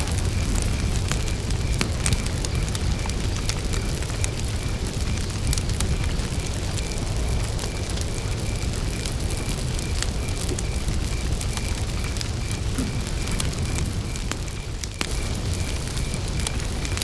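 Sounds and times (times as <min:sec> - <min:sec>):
campfire crackling: 0:00.0 - 0:17.0
cricket chirping: 0:00.0 - 0:17.0.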